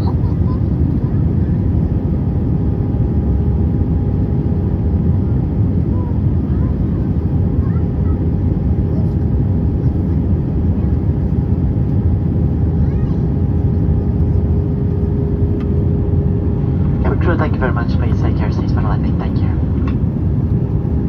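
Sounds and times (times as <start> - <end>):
airplane cabin engine and airflow noise: 0.0 - 21.0
constant hum: 0.0 - 21.0.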